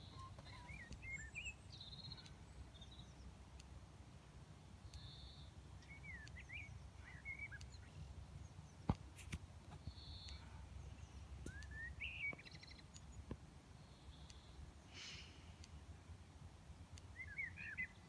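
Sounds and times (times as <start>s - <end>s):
birds singing: 0.0s - 3.7s, 4.6s - 9.0s, 9.7s - 14.9s, 17.0s - 18.0s.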